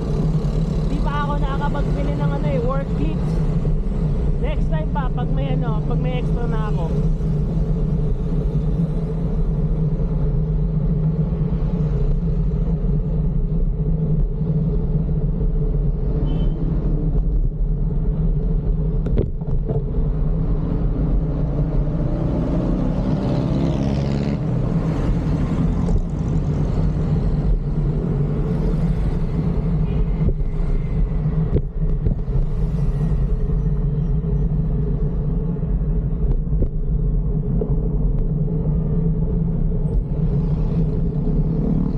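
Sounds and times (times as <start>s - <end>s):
road traffic rumble: 0.0s - 41.9s
vehicle passing: 21.4s - 27.3s.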